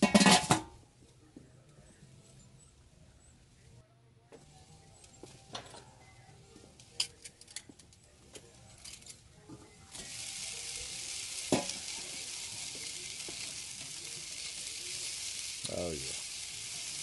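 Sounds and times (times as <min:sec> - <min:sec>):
chicken wings sizzling on a grill: 0:00.0 - 0:00.7, 0:04.4 - 0:17.0.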